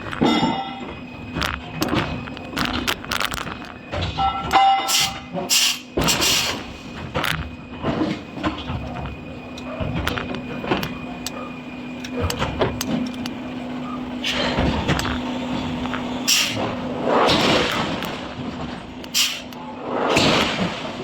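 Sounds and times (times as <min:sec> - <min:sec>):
metal clanks and knocks: 0:00.0 - 0:06.4
heavy machinery low hum: 0:00.0 - 0:21.0.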